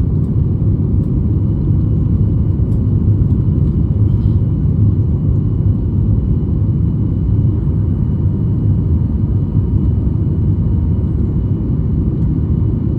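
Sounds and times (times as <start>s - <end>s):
aircraft cabin engine rumble: 0.0s - 12.9s.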